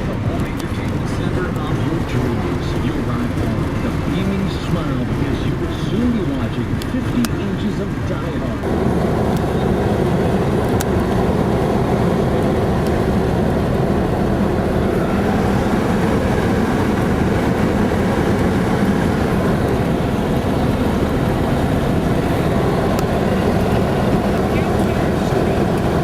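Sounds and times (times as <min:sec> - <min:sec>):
vehicle road noise rumble: 0:00.0 - 0:26.0.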